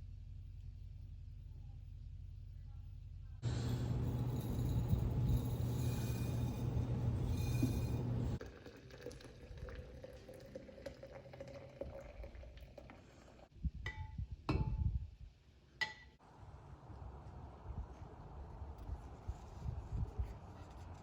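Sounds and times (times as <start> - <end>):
light metallic clinks: 3.4 - 8.4.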